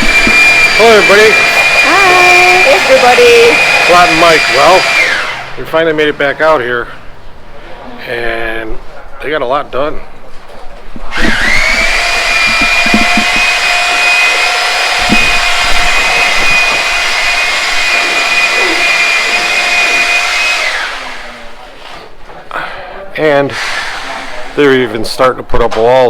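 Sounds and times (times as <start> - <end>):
power tool whining: 0.0 - 5.9, 11.0 - 22.1, 23.4 - 24.8.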